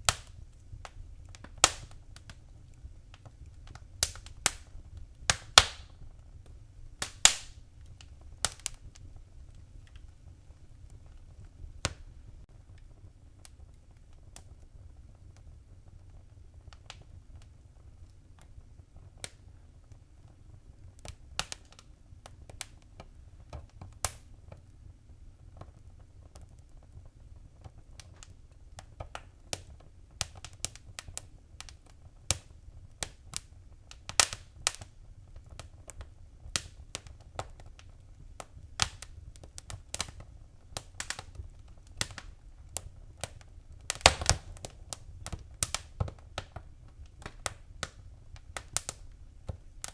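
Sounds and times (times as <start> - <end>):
fire crackling and popping: 0.0 - 49.9
low rumble of fire: 0.0 - 49.9.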